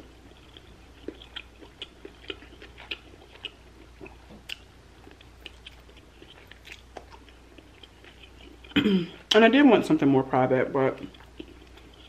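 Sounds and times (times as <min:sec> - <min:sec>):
wet chewing mouth sounds: 0:00.2 - 0:08.8, 0:11.0 - 0:12.0.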